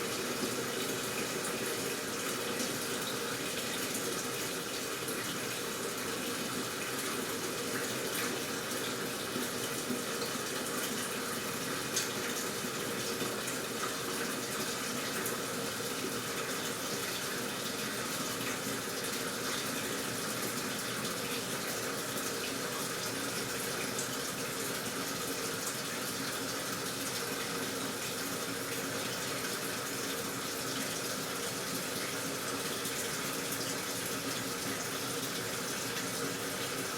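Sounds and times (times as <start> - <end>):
water rushing into washing machine: 0.0 - 36.9.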